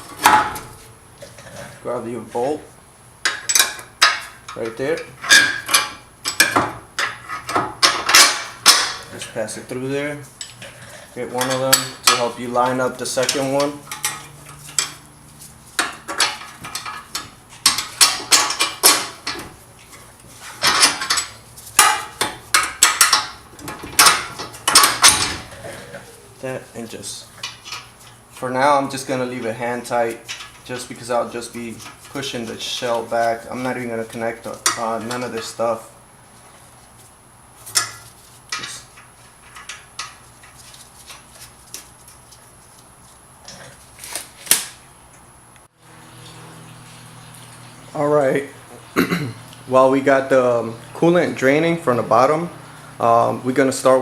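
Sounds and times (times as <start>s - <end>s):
steel bolts clinking: 3.2s - 9.1s, 15.8s - 19.5s, 20.6s - 25.5s.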